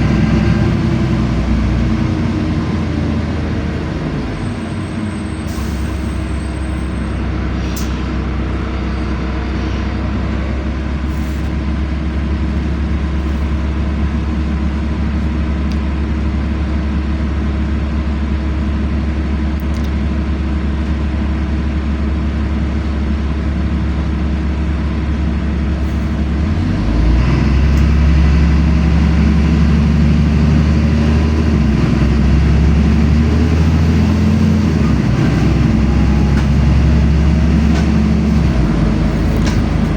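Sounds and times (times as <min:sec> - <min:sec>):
road noise: 0:00.0 - 0:18.1, 0:22.0 - 0:39.9
bus engine humming: 0:00.0 - 0:39.9.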